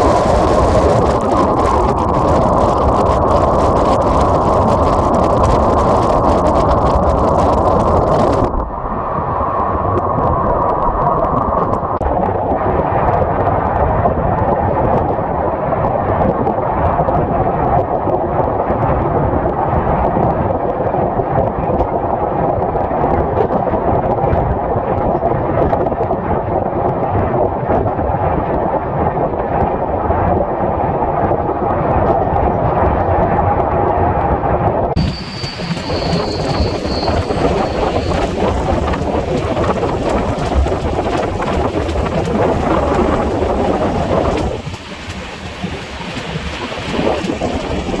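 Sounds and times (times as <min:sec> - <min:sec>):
train rumbling roar: 0:00.0 - 0:09.9, 0:34.9 - 0:48.0.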